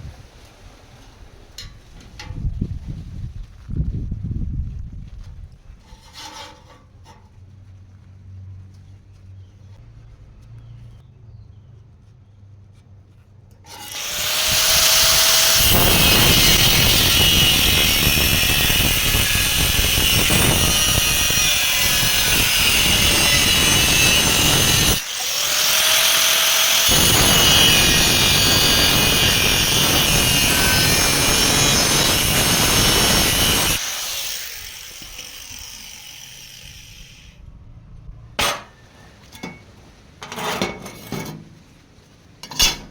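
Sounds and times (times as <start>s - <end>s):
power tool running under load: 13.7s - 37.4s.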